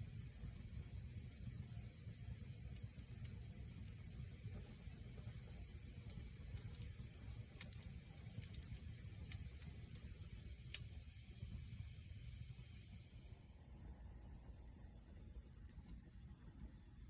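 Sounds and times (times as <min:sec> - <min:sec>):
wood fire rumbling and hissing: 0:00.0 - 0:17.0
burning wood crackling and popping: 0:00.3 - 0:10.9, 0:15.0 - 0:17.0.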